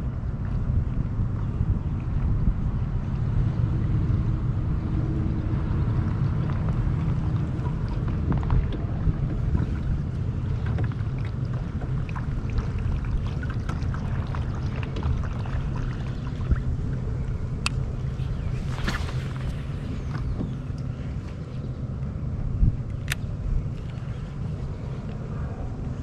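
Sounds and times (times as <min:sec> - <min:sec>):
wind rumble on microphone: 0:00.0 - 0:26.0
water splashing against kayak hull: 0:00.4 - 0:21.5.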